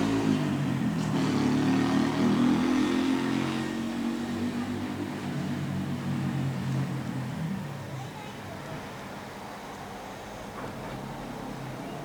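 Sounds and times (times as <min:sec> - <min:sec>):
vehicle engine accelerating: 0:00.0 - 0:07.3
traffic noise: 0:00.0 - 0:12.0.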